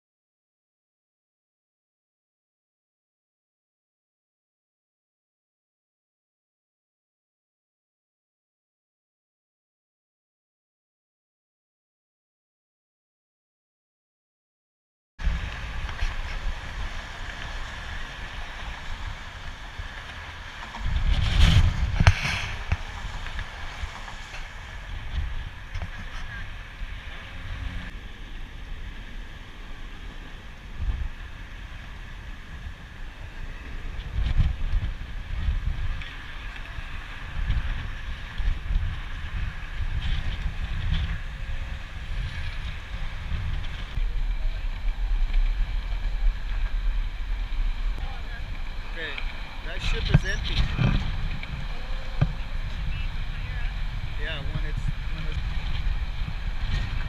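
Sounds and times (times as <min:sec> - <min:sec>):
motorcycle engine rumble: 0:15.2 - 0:57.0
wind rushing over microphone: 0:15.2 - 0:57.0.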